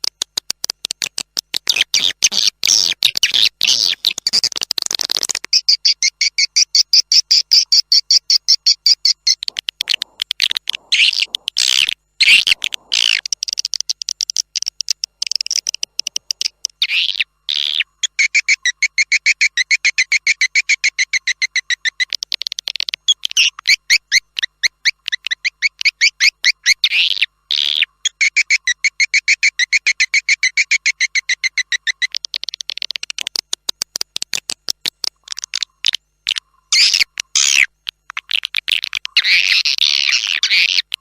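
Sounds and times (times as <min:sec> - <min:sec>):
raspy bird calls: 0:01.6 - 0:33.2, 0:35.2 - 0:41.0
swiftlets twittering: 0:08.4 - 0:18.4.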